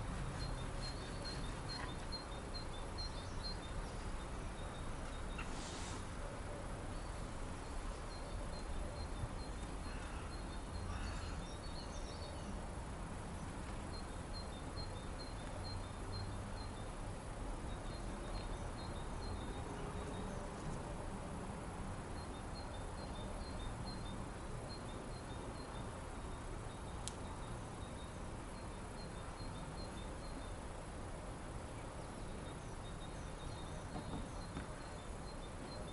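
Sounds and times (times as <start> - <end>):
outdoor hiss: 2.8 - 6.2.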